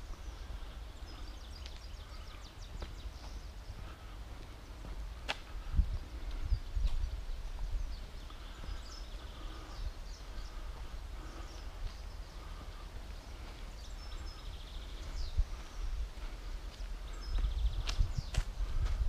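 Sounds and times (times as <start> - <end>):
faint birdsong chirps and trills: 0.0 - 19.0
low rumble on the microphone: 0.0 - 19.0.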